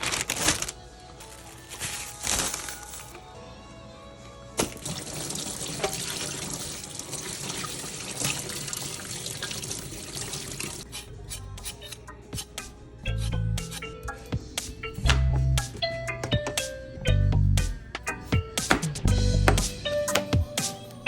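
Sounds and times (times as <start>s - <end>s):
tap water running into sink: 4.6s - 10.8s.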